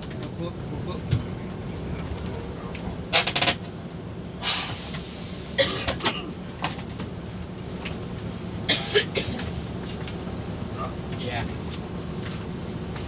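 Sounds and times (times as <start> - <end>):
bus engine low drone: 0.0 - 13.0
air brake hiss: 4.4 - 5.6.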